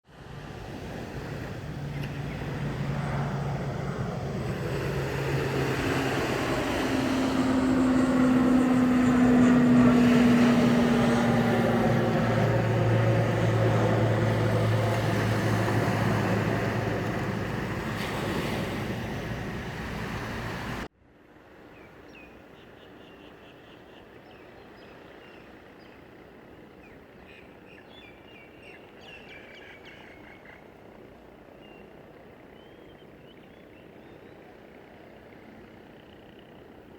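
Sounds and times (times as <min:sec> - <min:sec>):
jet airliner passing overhead: 0:00.1 - 0:20.9.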